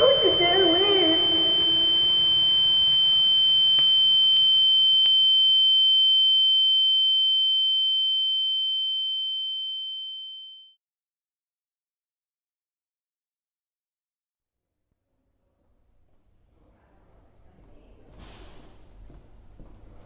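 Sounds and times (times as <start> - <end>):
faint background ambience: 0.0 - 3.0
high-pitched pure tone: 0.0 - 5.9.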